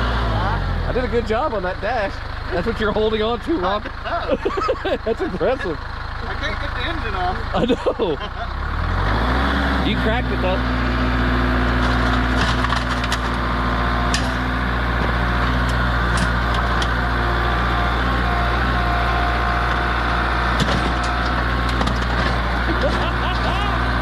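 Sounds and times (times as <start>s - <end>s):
tractor engine running: 0.0s - 24.0s
cracking and splintering: 11.6s - 17.0s, 20.5s - 23.7s.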